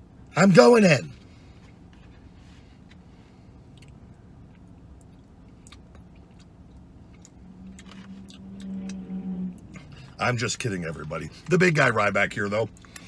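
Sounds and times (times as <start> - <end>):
man chewing a sandwich: 1.2 - 10.2.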